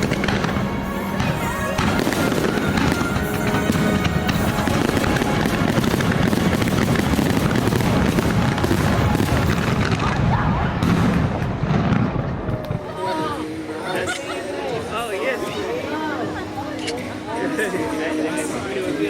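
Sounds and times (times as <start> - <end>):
fireworks booming: 0.0 - 12.9
show music: 0.0 - 19.0.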